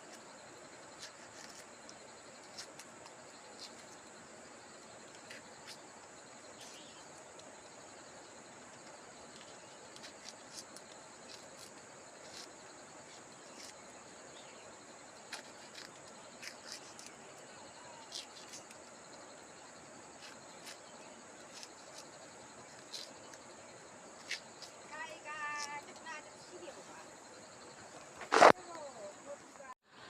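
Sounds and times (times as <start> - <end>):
insects chirring: 0.0 - 30.0.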